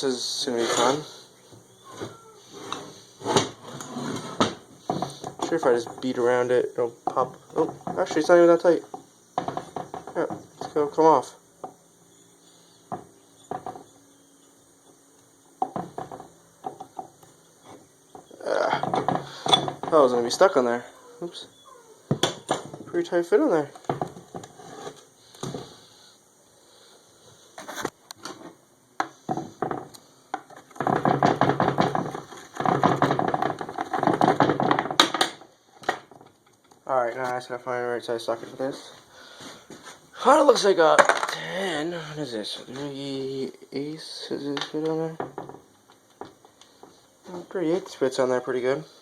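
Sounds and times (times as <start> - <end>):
metal clanks and knocks: 7.0 - 10.8, 15.6 - 20.2, 22.1 - 23.0, 29.3 - 36.4, 45.2 - 47.0.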